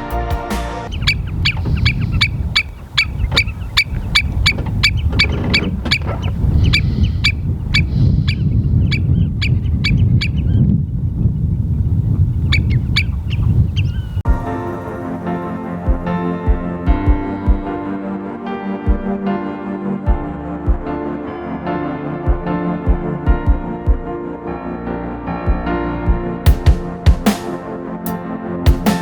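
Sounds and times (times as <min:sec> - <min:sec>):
shorebird calling: 0:00.9 - 0:10.6
wind rumble on microphone: 0:00.9 - 0:18.2, 0:18.9 - 0:21.3, 0:22.1 - 0:27.2.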